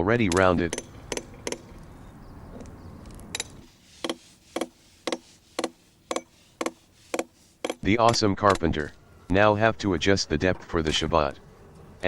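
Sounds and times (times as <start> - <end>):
hand tool striking tree trunk: 0.3 - 1.8, 3.4 - 8.9.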